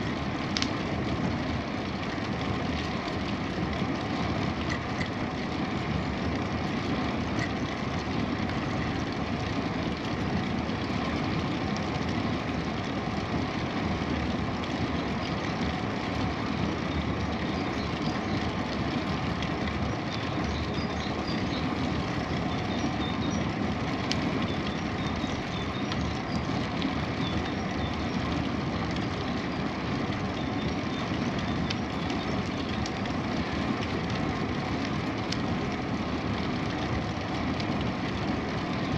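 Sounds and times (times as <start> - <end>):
wind and tyre rumble: 0.0 - 38.9.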